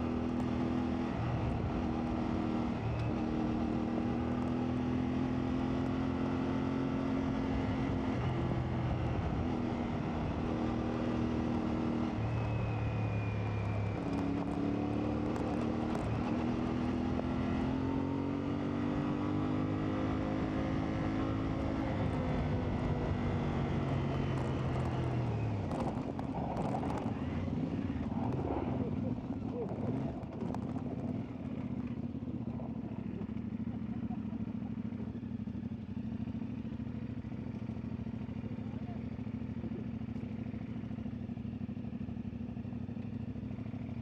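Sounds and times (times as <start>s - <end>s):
motorcycle engine revving: 13.4s - 44.0s.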